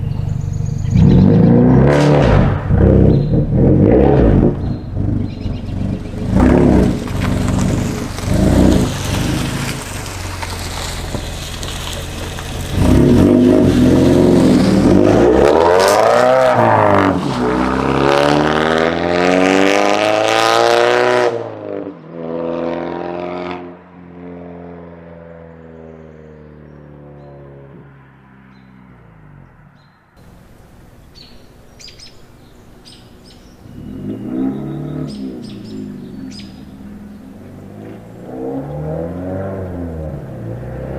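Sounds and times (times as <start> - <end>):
car engine revving: 0.0 - 25.5, 26.4 - 40.9
car engine idling: 4.5 - 14.9, 30.2 - 38.4.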